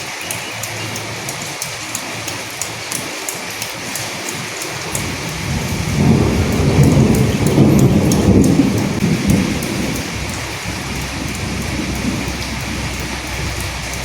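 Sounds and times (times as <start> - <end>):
steady rain falling: 0.0 - 14.0
low rumble of thunder: 4.8 - 14.0.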